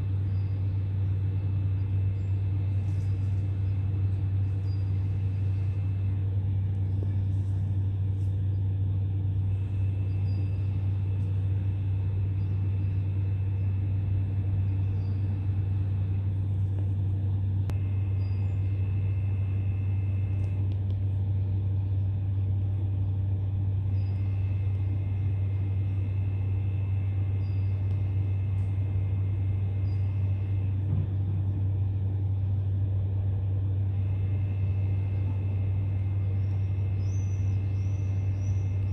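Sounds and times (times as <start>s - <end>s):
faint high whine: 0.0s - 38.9s
low mechanical hum: 0.0s - 38.9s.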